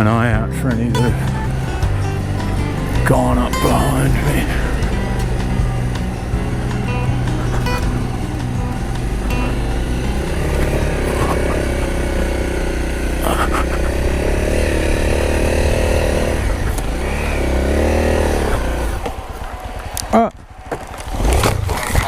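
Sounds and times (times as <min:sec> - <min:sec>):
dirt bike engine revving: 0:00.7 - 0:21.6.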